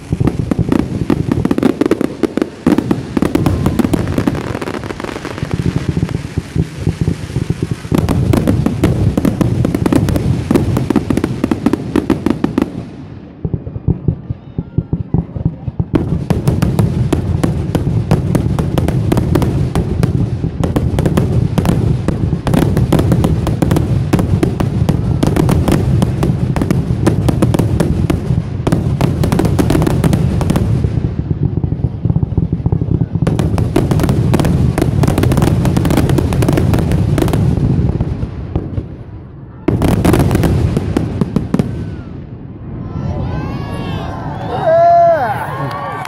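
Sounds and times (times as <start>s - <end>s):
fireworks bursts and crackling bangs: 0.0s - 43.8s.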